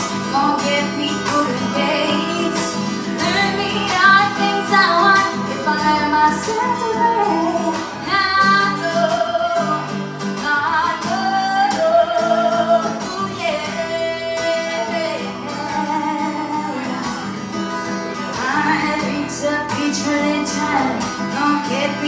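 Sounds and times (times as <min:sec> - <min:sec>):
guitar accompaniment: 0:00.0 - 0:22.0
woman singing: 0:00.0 - 0:22.0.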